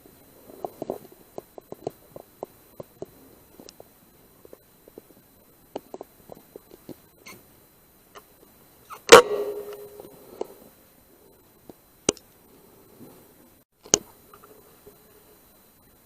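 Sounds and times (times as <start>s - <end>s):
gunshot with ringing tail: 9.1s - 10.2s
faint sharp clicks: 11.6s - 12.3s.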